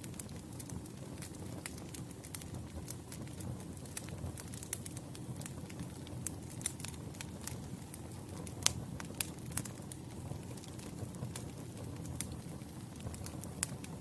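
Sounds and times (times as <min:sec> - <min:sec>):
burning logs crackling and popping: 0:00.0 - 0:14.0
campfire flames rumbling: 0:00.0 - 0:14.0.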